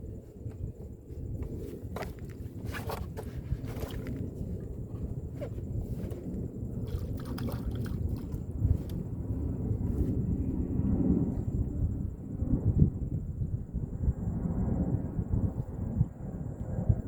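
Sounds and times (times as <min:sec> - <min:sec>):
steady low rumble: 0:00.0 - 0:17.0
water sloshing and splashing: 0:02.0 - 0:05.0, 0:06.8 - 0:09.0.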